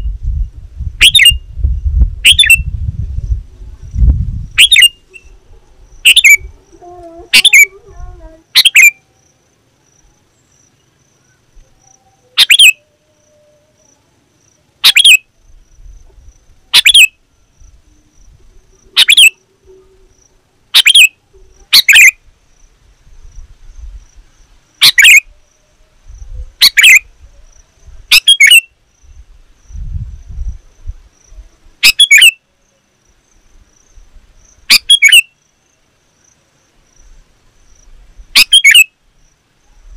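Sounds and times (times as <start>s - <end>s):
bulbul sharp calls: 1.0s - 1.4s, 2.2s - 2.6s, 4.6s - 9.1s, 10.7s - 14.0s, 14.8s - 15.3s, 16.7s - 17.7s, 18.7s - 22.2s, 24.8s - 25.4s, 26.5s - 28.7s, 31.8s - 32.4s, 34.6s - 35.4s, 38.3s - 39.0s.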